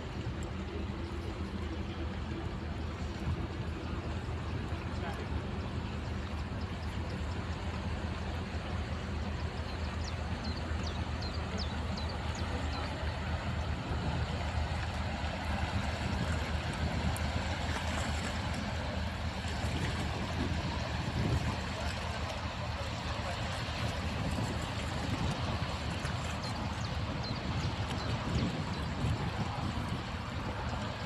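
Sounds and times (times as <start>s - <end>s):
ship engine drone: 0.0s - 31.0s
wind and water hiss: 0.0s - 31.0s.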